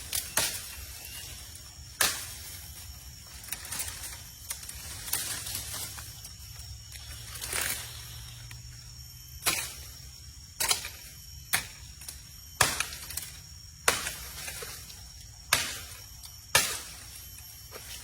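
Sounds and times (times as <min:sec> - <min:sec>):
axe chopping wood: 0:15.5 - 0:16.9.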